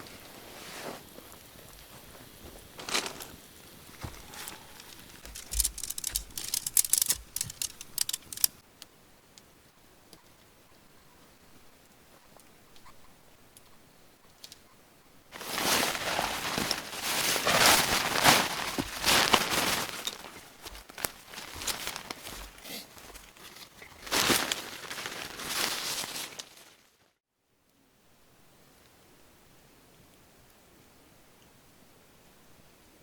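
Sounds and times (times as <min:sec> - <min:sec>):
rustling and crinkling: 0:00.0 - 0:08.6, 0:15.3 - 0:27.1
small clicks: 0:04.4 - 0:08.9.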